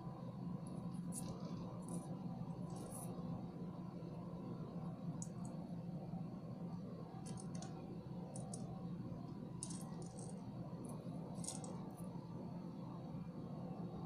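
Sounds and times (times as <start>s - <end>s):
steady low hum: 0.0s - 14.0s
beads clicking and rattling: 1.1s - 3.1s, 7.2s - 8.8s, 9.6s - 10.5s, 11.3s - 11.8s.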